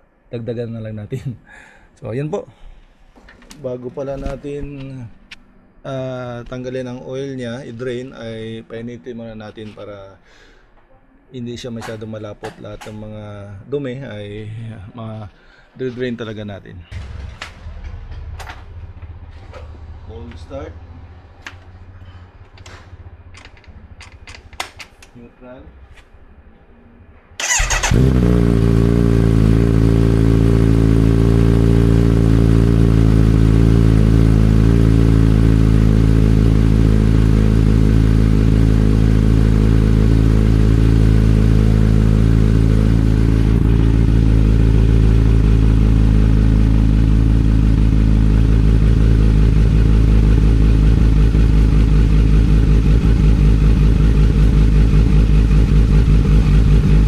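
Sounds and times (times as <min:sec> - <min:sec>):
motorcycle engine idling: 0:27.4 - 0:57.0.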